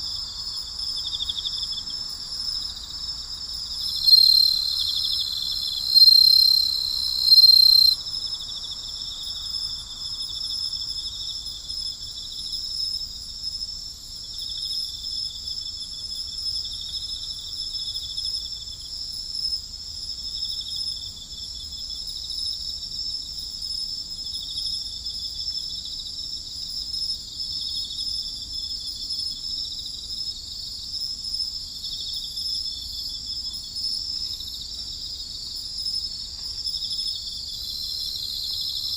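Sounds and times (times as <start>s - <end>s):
crickets and insects chirring: 0.0s - 38.9s
high insect trill: 0.0s - 38.9s.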